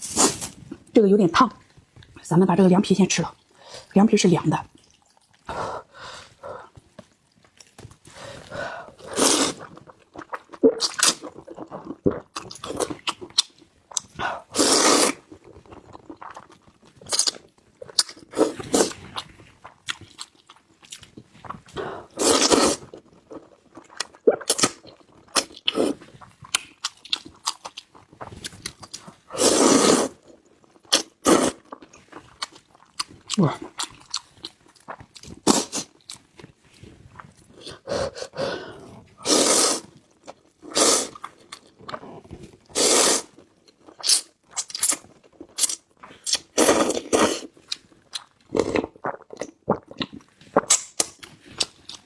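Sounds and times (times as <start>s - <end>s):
chewing and wet smacking: 4.7s - 5.5s, 23.3s - 29.2s, 47.5s - 52.0s.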